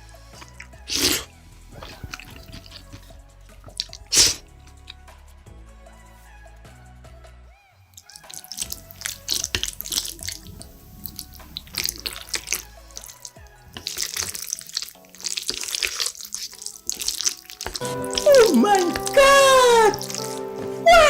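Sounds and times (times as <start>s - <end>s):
faint background music: 0.0s - 21.0s
slurping noodles and chewing: 0.3s - 4.4s, 8.0s - 19.0s.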